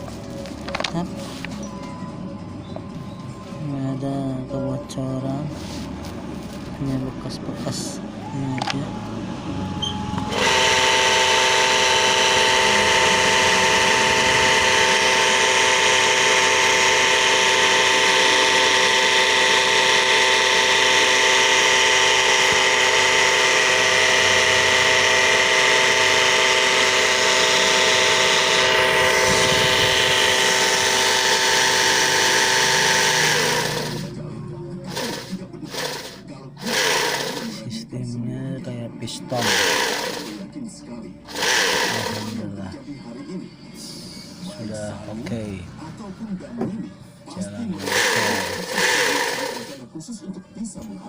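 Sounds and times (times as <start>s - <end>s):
pressure washer pump humming: 8.6s - 34.2s, 34.9s - 37.6s, 39.4s - 40.4s, 41.3s - 42.6s, 47.6s - 49.9s.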